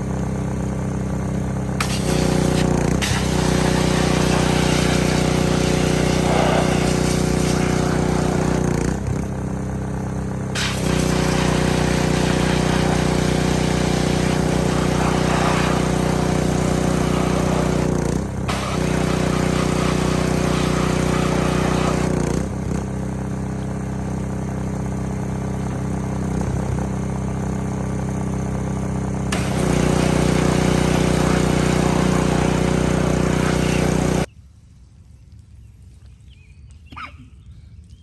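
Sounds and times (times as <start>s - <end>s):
pressure washer engine running: 0.0s - 34.3s
water spray hissing: 1.8s - 8.8s, 10.6s - 22.2s, 29.3s - 34.3s.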